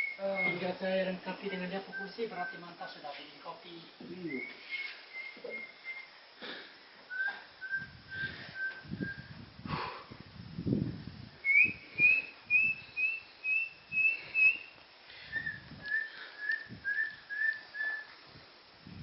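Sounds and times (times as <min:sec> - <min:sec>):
bird whistling notes: 0:00.0 - 0:00.8, 0:04.2 - 0:06.1, 0:07.1 - 0:09.3, 0:11.4 - 0:18.1.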